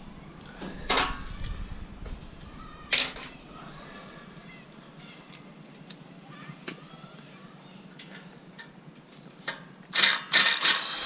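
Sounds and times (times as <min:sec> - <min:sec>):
distant voices: 0:00.0 - 0:11.0.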